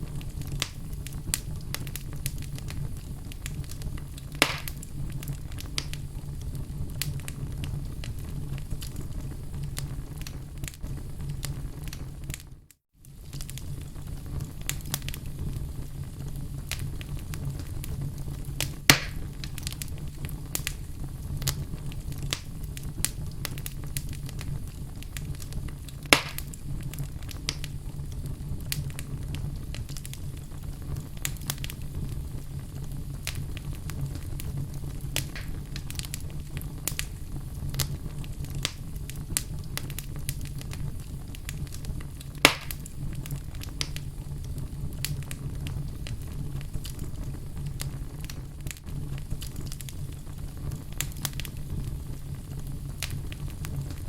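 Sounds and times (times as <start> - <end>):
loud fire snaps: 0.0 - 54.0
wood fire crackling: 0.0 - 54.0.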